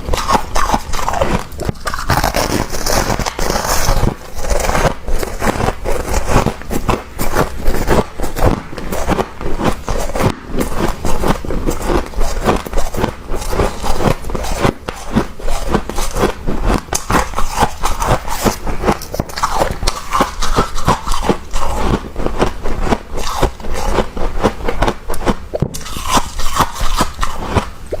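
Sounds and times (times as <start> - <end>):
frost being scraped and crunched: 0.1 - 28.0.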